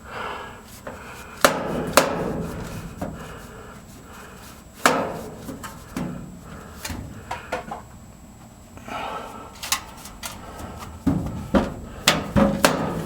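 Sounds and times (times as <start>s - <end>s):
knocks on metal ductwork: 1.4s - 3.5s, 4.8s - 7.8s, 11.0s - 13.0s.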